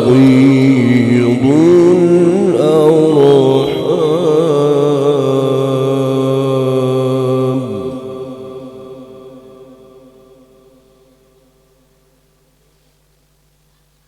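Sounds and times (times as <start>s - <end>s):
man reciting melodically: 0.0s - 9.7s
echo of voice: 0.0s - 11.7s.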